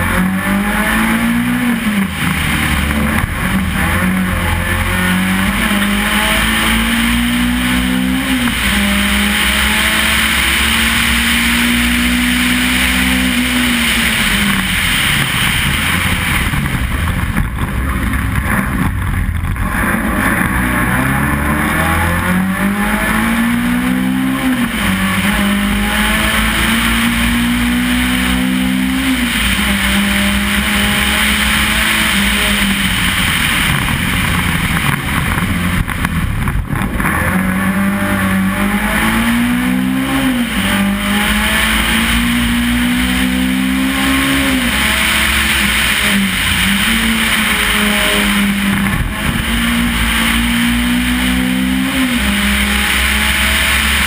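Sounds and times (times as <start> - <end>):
race car engine shifting gears: 0.0 - 54.0
steady rushing noise: 0.0 - 54.0.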